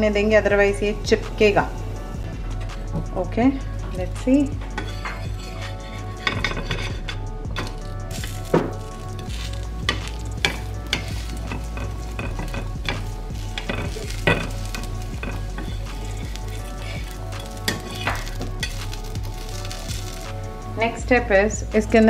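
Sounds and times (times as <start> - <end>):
spatula scraping: 4.3 - 20.6
batter sizzling on a griddle: 4.7 - 20.6.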